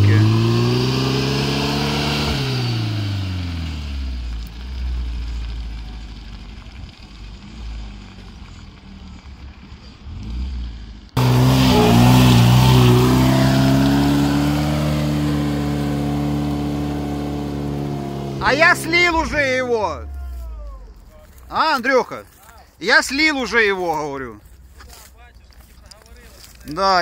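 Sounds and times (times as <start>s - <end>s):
off-road vehicle engine revving: 0.0s - 21.5s
wheels spinning in mud: 0.0s - 27.0s.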